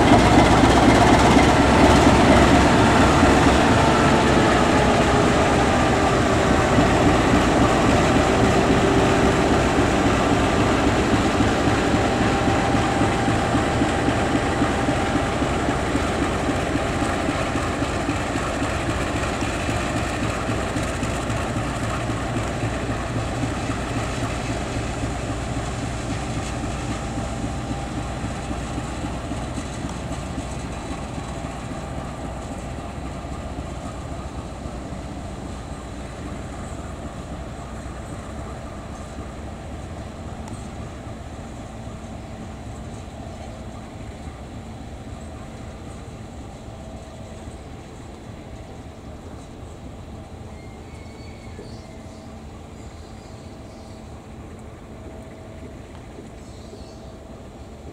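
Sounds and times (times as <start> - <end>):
diesel engine running: 0.0 - 50.2
train wheels clattering: 0.0 - 57.1
faint falling squeals: 50.5 - 53.4.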